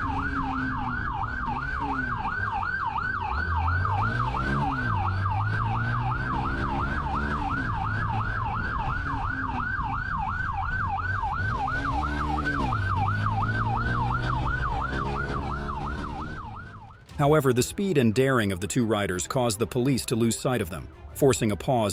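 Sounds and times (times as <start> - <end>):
police siren yelping: 0.0 - 17.1
car engine revving: 0.0 - 17.3.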